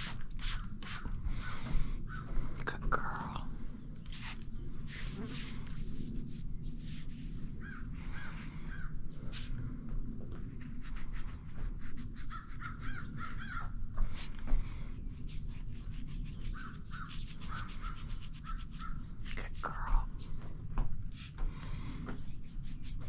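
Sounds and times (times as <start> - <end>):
close rubbing strokes: 4.1 - 8.5, 9.3 - 9.6, 10.4 - 12.9, 15.0 - 19.6, 22.2 - 23.0
birds calling: 7.6 - 9.3, 12.3 - 13.8, 16.3 - 20.6.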